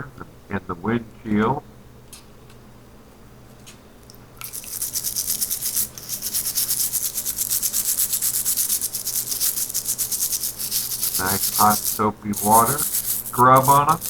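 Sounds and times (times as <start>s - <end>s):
brush scrubbing in soapy water: 4.4s - 14.0s.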